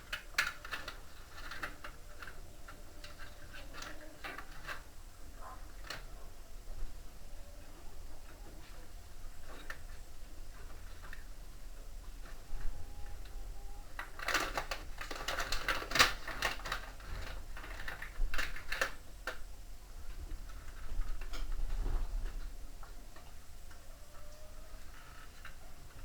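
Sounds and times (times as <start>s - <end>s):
hand tools clicking and rattling: 14.0s - 19.4s.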